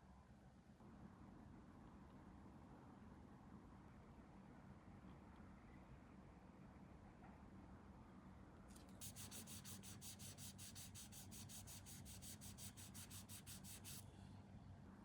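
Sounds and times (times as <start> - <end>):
file rubbing on plastic: 9.0 - 14.0.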